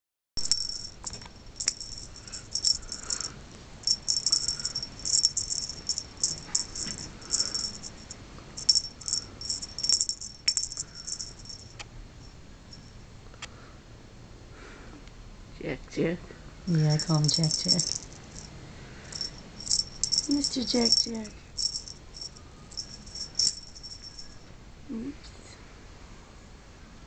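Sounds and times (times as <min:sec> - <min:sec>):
cat toy jingling: 0:00.4 - 0:11.8, 0:16.7 - 0:18.5, 0:19.1 - 0:24.4.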